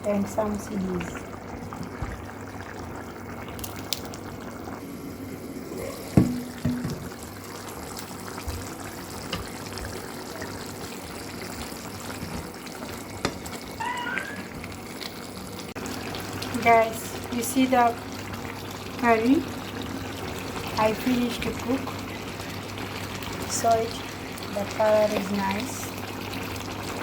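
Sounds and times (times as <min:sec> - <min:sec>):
loud knock: 0:06.2 - 0:07.1
watery liquid noise: 0:13.6 - 0:15.2.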